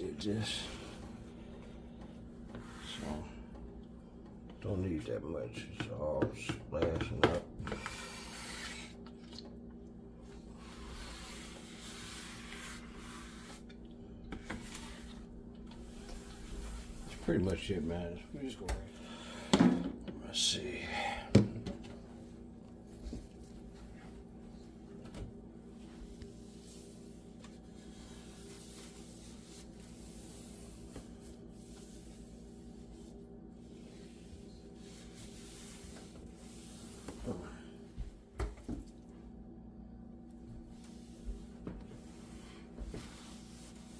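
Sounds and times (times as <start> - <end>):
steady low hum: 0.0 - 43.9
pad wiping glass cooktop: 0.3 - 3.5, 10.5 - 13.7, 14.3 - 17.9, 25.6 - 38.2, 40.6 - 43.9.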